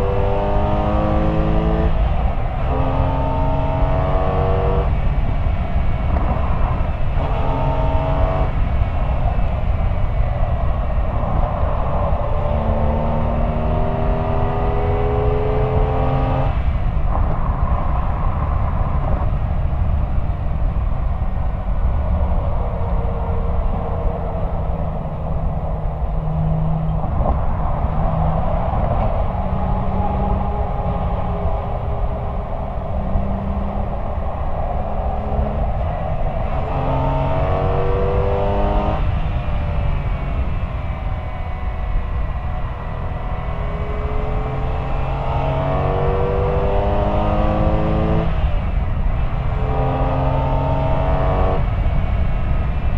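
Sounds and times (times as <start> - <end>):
car exhaust: 0.0 - 52.9
road rumble: 0.0 - 52.9
wind on microphone: 0.0 - 52.9.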